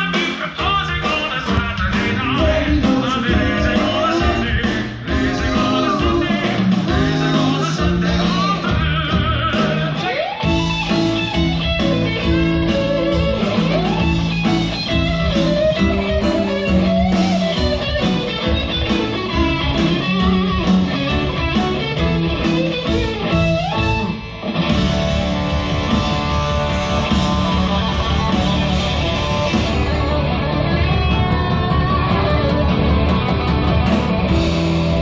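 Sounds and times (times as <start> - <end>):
bass guitar: 0.0 - 35.0
drums: 0.0 - 35.0
electric guitar solo: 9.9 - 35.0.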